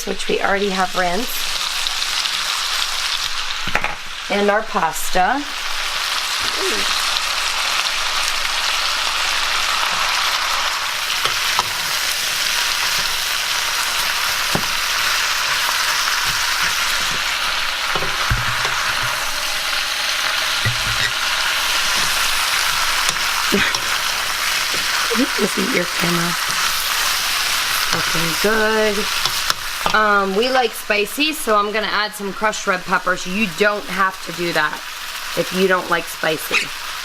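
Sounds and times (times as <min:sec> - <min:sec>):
vegetables sizzling in oil: 0:00.0 - 0:37.0
pan being stirred knocks: 0:20.6 - 0:21.3.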